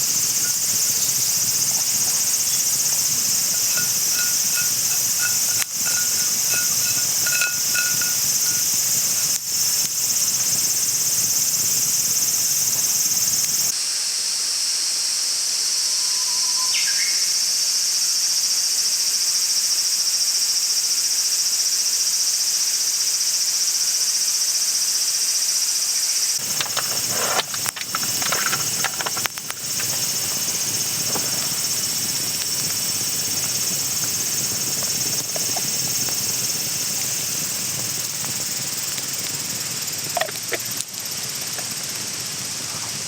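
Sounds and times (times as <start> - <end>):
steady hiss: 0.0 - 15.8, 26.4 - 43.0
insects trilling: 0.0 - 43.0.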